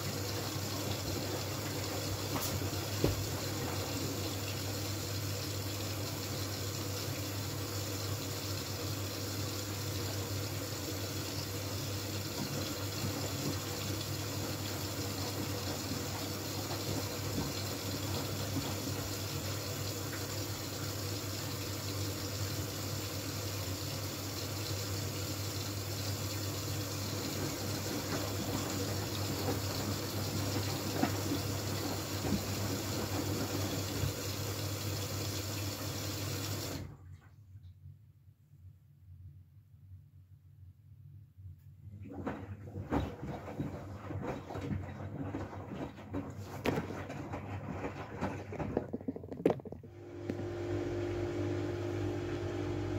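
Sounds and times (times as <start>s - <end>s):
water rushing into washing machine: 0.0s - 37.4s, 41.9s - 52.9s.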